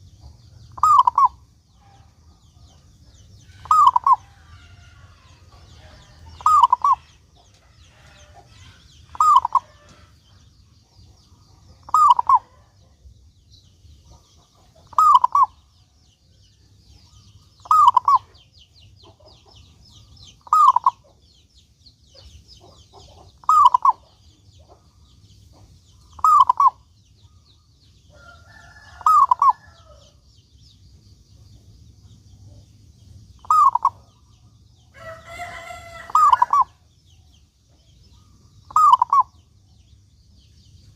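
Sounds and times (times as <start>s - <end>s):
dove cooing: 0.7s - 1.4s, 3.5s - 10.0s, 11.8s - 12.7s, 14.8s - 15.6s, 17.6s - 18.3s, 20.4s - 21.0s, 23.4s - 24.0s, 26.2s - 26.8s, 28.7s - 30.0s, 33.4s - 34.0s, 35.0s - 36.8s, 38.2s - 39.3s.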